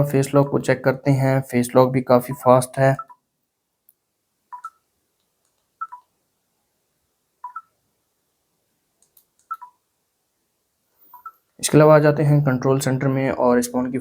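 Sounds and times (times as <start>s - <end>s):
faint clicks: 4.6s - 6.1s, 9.0s - 9.7s.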